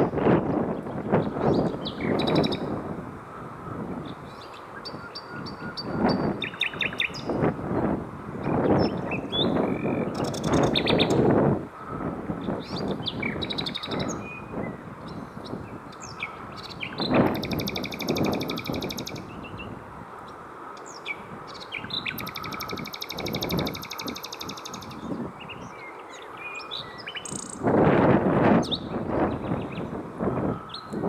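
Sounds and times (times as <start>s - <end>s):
nightingale singing: 0.8s - 2.7s, 4.0s - 7.4s, 8.4s - 11.2s, 12.4s - 27.6s.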